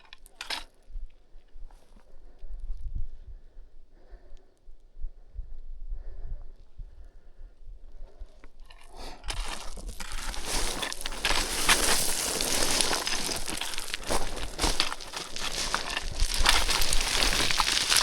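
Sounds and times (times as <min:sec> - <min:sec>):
footsteps crunching on scree: 0:08.7 - 0:18.0.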